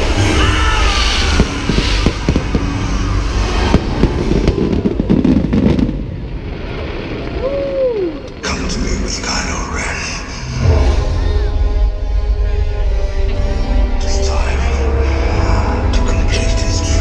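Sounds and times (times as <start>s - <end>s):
fireworks bangs: 0.0s - 9.6s
fireworks crackling: 0.0s - 9.9s.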